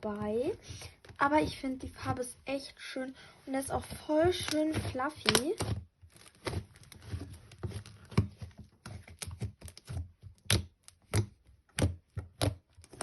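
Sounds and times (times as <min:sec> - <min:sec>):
slime snapping and popping: 0:10.4 - 0:12.6.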